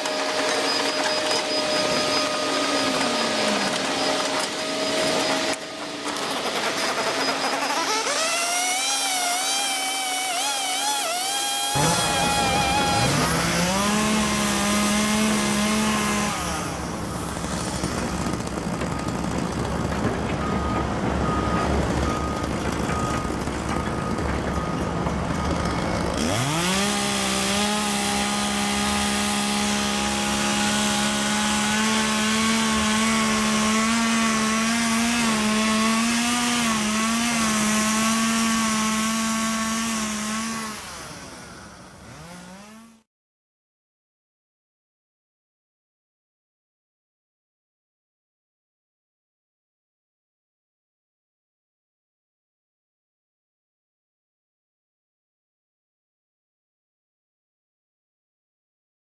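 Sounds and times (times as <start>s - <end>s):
chainsaw running at high revs: 0.0s - 20.0s, 25.4s - 43.1s.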